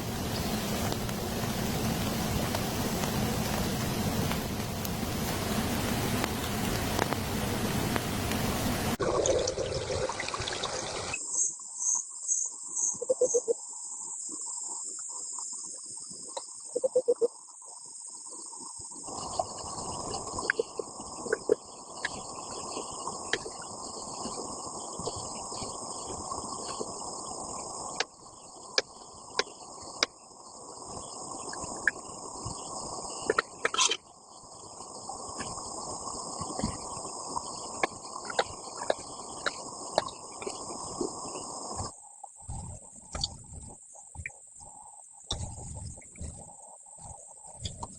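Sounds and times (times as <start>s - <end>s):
dense low hiss: 0.0s - 9.0s
insects chirring: 0.0s - 9.0s, 10.4s - 47.9s.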